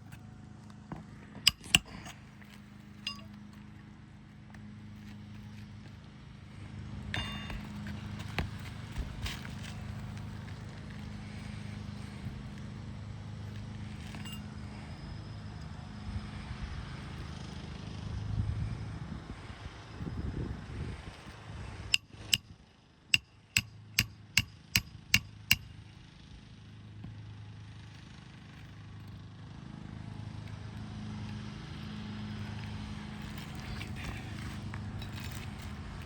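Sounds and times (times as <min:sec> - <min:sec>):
hammer striking nails: 0:01.5 - 0:02.1, 0:23.2 - 0:25.8.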